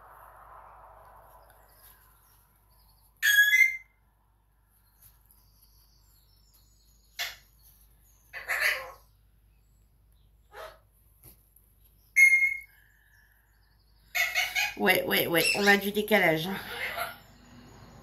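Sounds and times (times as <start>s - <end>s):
pet bird calling: 14.1s - 17.3s.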